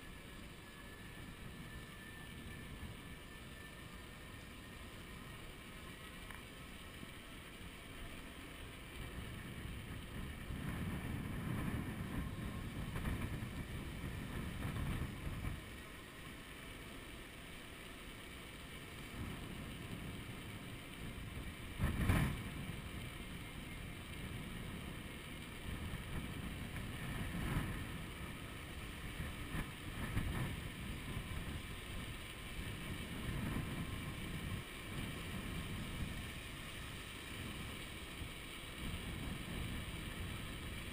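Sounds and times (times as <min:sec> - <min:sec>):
wind buffeting microphone: 0:09.0 - 0:15.8, 0:19.0 - 0:40.9.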